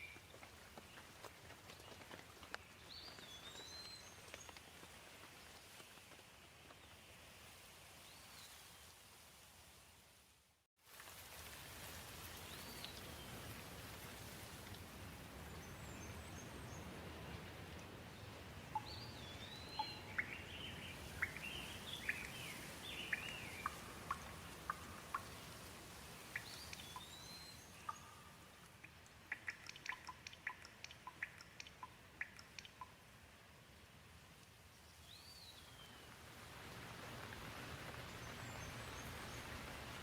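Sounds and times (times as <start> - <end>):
gentle rain hissing: 0.0 - 40.0
sharp water drips: 18.6 - 33.2
bird chirps: 18.8 - 25.3, 26.4 - 32.9.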